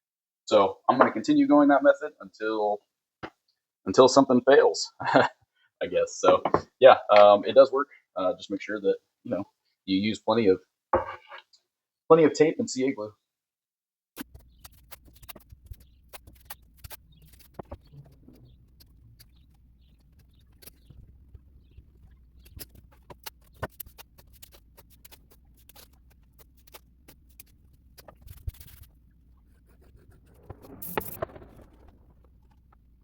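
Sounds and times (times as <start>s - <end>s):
tape rustling: 14.2s - 33.0s
low hum: 14.3s - 33.0s.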